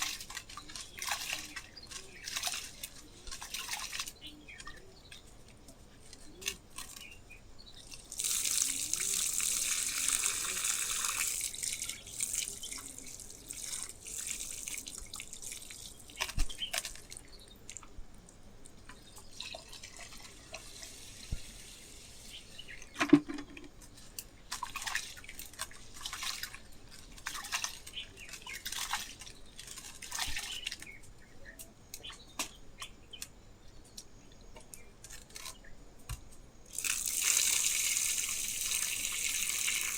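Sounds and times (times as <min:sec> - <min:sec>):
water pouring: 0:00.0 - 0:04.2, 0:07.8 - 0:17.8, 0:19.0 - 0:23.8, 0:24.5 - 0:30.9, 0:36.7 - 0:39.9
water splashing and dripping: 0:00.0 - 0:07.0, 0:07.8 - 0:31.0, 0:36.7 - 0:39.9.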